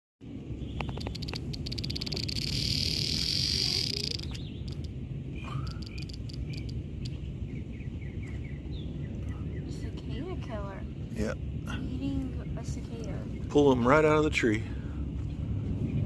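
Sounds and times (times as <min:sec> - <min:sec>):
low background rumble: 0:00.2 - 0:16.0
cicada distress buzz: 0:00.7 - 0:07.2.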